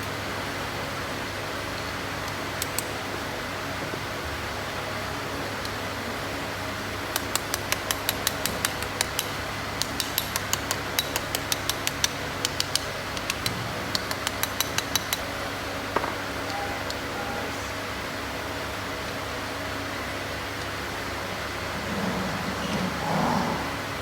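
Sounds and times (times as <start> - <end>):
fan hum: 0.0 - 24.0
sharp metallic clicks: 7.2 - 15.3.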